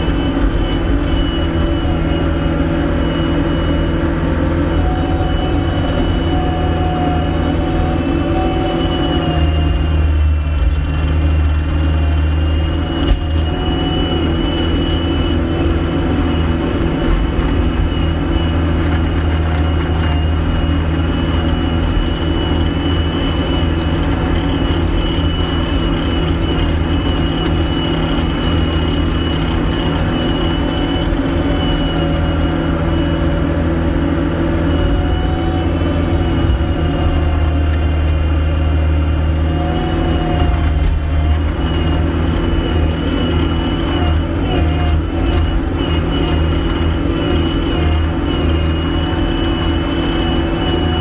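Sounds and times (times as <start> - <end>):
diesel engine running: 0.0 - 51.0
high whine: 0.0 - 51.0.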